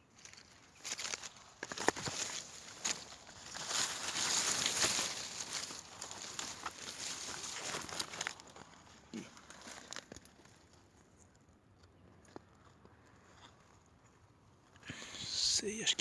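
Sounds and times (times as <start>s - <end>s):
footsteps rustling dry leaves: 0.2s - 8.7s.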